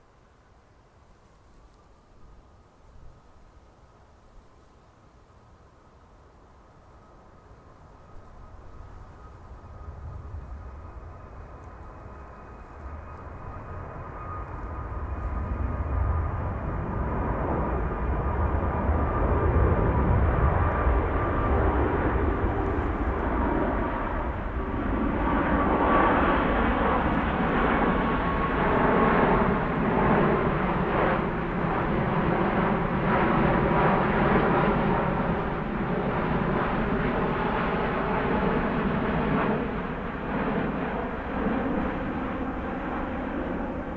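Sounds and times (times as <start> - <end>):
jet engines roaring: 9.6 - 43.9.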